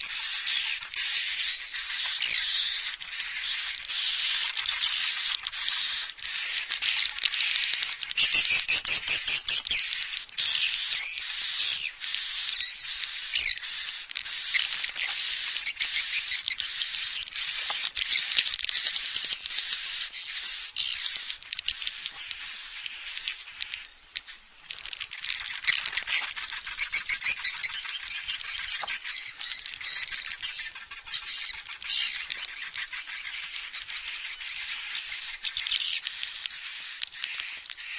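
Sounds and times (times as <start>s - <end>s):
rapid clicking trills: 0.0s - 37.9s
swiftlets twittering: 7.6s - 37.9s.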